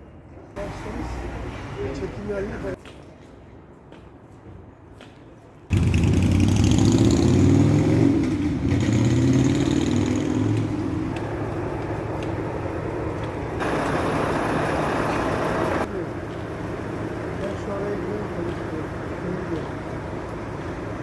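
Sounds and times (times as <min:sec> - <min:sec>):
vehicle engine revving: 0:05.7 - 0:15.9.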